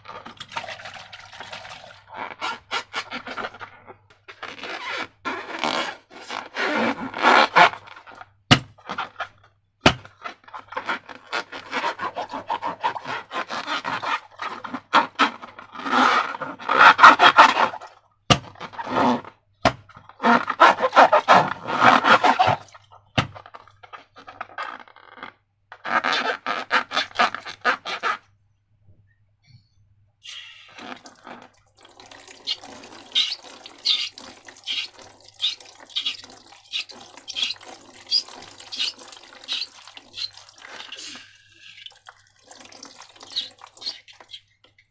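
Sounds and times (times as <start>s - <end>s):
slime scraping and squishing: 4.3s - 28.2s, 32.4s - 41.9s, 43.2s - 44.5s.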